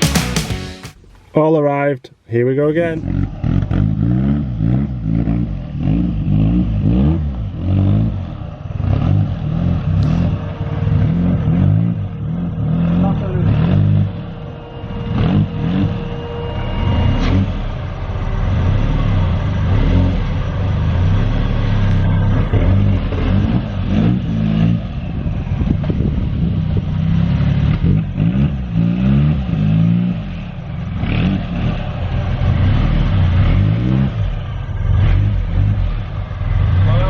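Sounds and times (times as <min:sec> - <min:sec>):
car engine revving: 0:00.0 - 0:01.3, 0:02.8 - 0:37.0.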